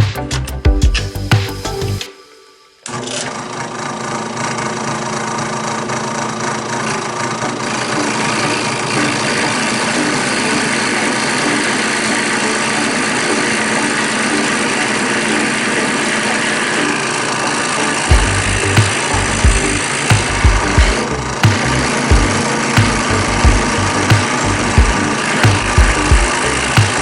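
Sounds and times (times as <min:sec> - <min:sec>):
drill press spinning: 0:02.8 - 0:27.0.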